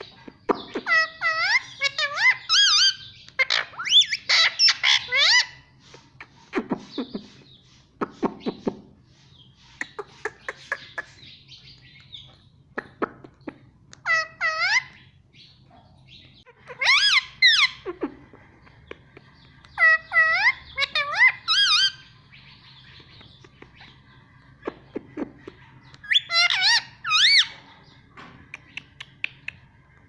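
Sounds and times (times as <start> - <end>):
parrot clicks and chirps: 28.4 - 30.0.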